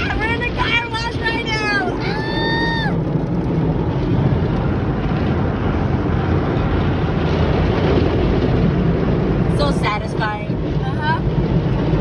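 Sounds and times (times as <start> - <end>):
car wash machinery and water: 3.0 - 12.0.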